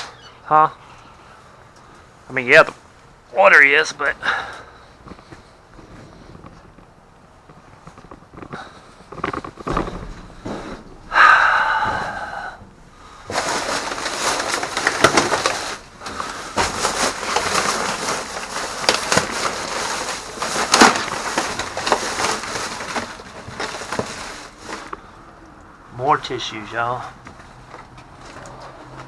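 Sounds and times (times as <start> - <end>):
plastic bags rustling and crinkling: 13.0 - 25.2.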